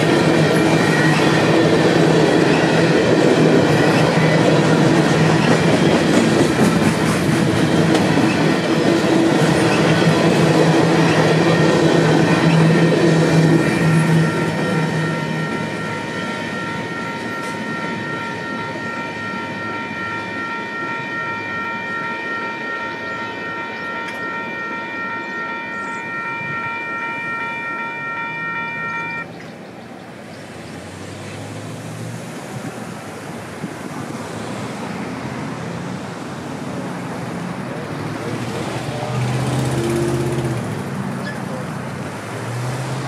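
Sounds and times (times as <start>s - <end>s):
railroad crossing bell ringing: 0.0s - 29.4s
freight train passing: 0.0s - 43.0s
road vehicles approaching: 0.0s - 43.0s.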